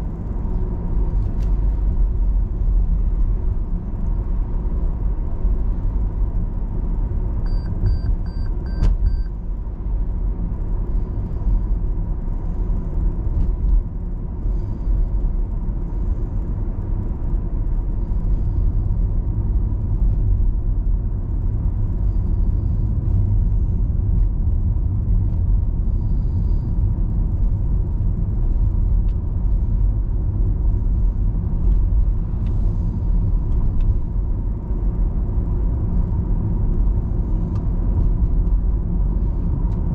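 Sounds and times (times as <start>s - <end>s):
car engine and tyre rumble: 0.0s - 39.9s
short high beeps: 7.5s - 9.3s.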